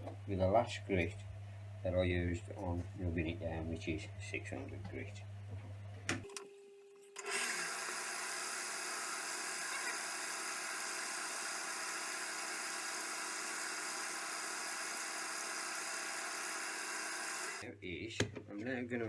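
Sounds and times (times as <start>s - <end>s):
wood lathe motor whir: 7.2s - 17.6s.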